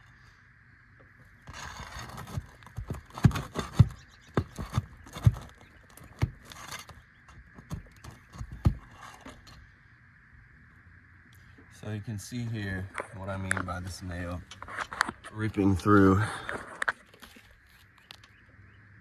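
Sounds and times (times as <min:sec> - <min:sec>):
metal bar scraping shingles: 0:01.4 - 0:09.6
sharp metal knocks and clicks: 0:02.1 - 0:09.6.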